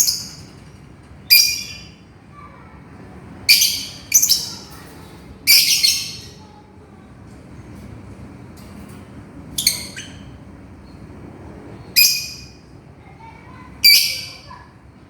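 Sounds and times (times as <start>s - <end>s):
lovebird shrill calls: 3.5s - 4.7s, 5.5s - 6.3s, 9.6s - 10.3s, 12.0s - 12.6s
faint bird chirps: 3.5s - 4.8s, 5.5s - 6.4s, 9.6s - 10.4s.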